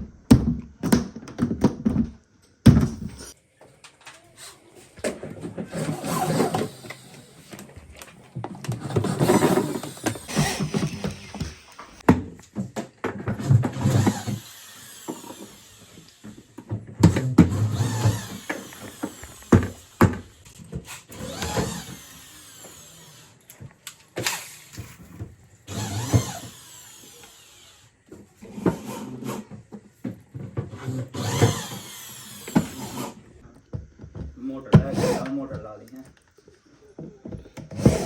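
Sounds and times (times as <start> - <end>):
knocks and clatter of parts: 4.9 - 14.4, 15.0 - 22.8, 28.1 - 34.9
power drill running: 5.8 - 8.0, 8.8 - 12.0, 13.8 - 16.7, 17.4 - 23.6, 25.7 - 28.0, 30.8 - 33.3.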